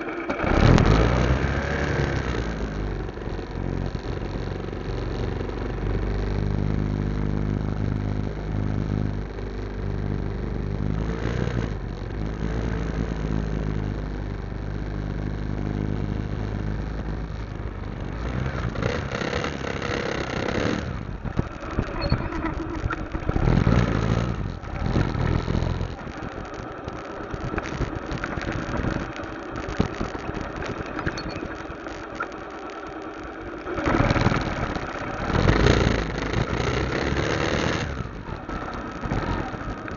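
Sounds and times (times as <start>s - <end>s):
motorcycle engine idling: 1.1s - 39.9s.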